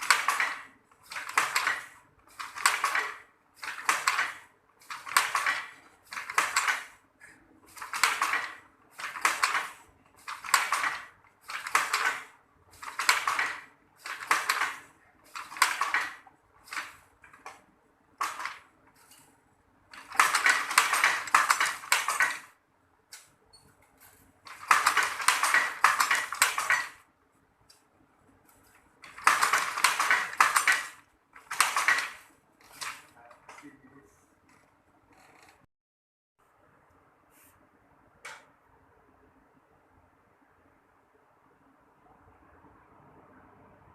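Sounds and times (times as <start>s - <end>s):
weaving loom clattering: 0.0s - 17.6s, 18.2s - 19.3s, 19.9s - 22.6s, 24.0s - 27.1s, 28.6s - 33.8s.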